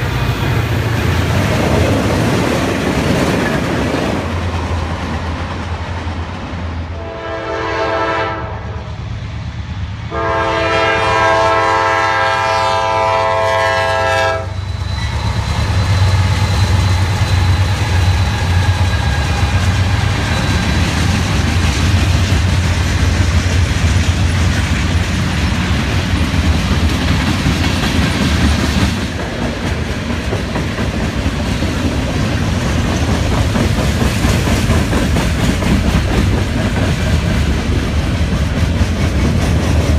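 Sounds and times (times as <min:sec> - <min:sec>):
wheels clacking over rail joints: 0:00.0 - 0:06.5, 0:15.0 - 0:39.9
freight train rumbling past: 0:00.0 - 0:39.9
locomotive air horn: 0:06.9 - 0:09.0, 0:10.1 - 0:14.6.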